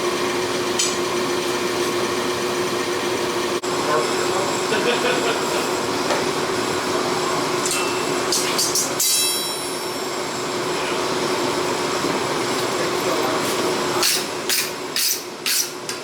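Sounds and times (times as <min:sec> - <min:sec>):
workshop machinery roar: 0:00.0 - 0:16.0
metallic clink: 0:07.6 - 0:09.9.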